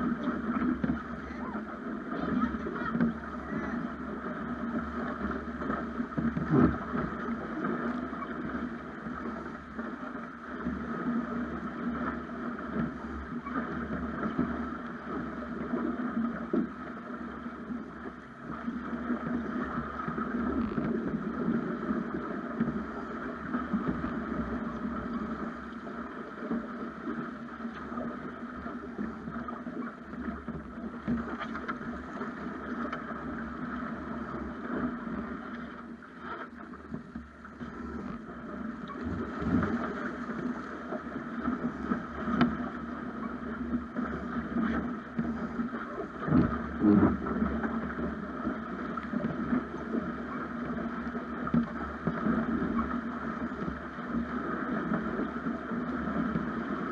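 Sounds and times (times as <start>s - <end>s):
water rushing along hull: 0.0s - 56.9s.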